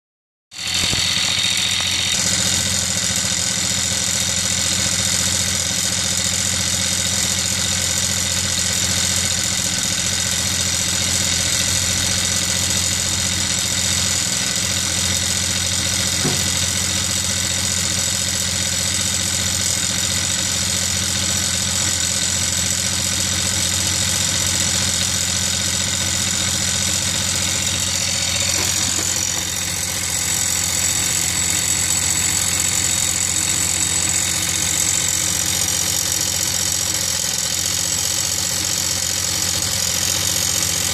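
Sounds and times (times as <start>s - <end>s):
bicycle motor humming and whining: 0.5s - 40.9s.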